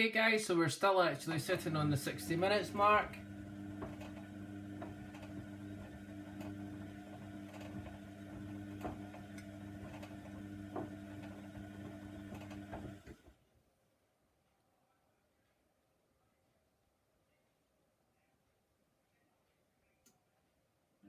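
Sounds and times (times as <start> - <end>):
washing machine motor hum: 1.3 - 13.4
drum turning: 1.4 - 13.2
washing machine clicks: 1.6 - 13.2.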